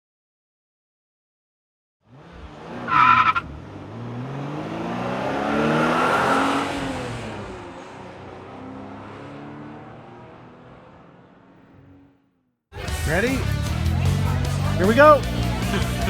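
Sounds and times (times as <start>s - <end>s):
car engine passing: 2.1s - 16.0s
tire squeal: 2.2s - 3.6s.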